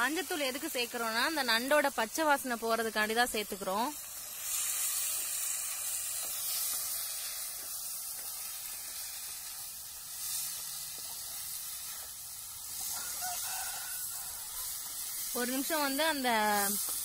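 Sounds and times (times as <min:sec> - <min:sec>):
onions and tomatoes sizzling: 0:00.0 - 0:17.0.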